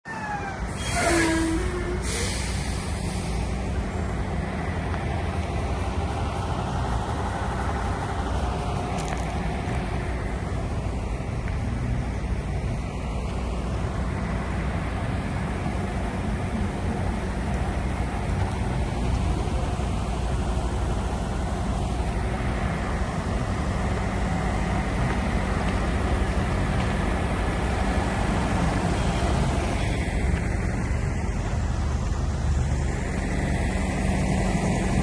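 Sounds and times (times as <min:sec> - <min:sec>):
brief squeal: 0:00.1 - 0:03.4
diesel truck engine running: 0:00.1 - 0:35.0
air hisses: 0:00.7 - 0:03.7.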